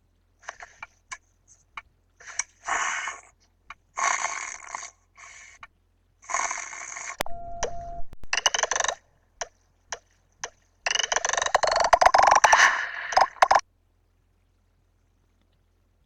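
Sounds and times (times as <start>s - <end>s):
small clicks: 0.4s - 2.6s, 7.2s - 13.6s
cartoon snoring: 4.0s - 5.4s, 6.3s - 7.2s
short steady tone: 7.2s - 8.3s.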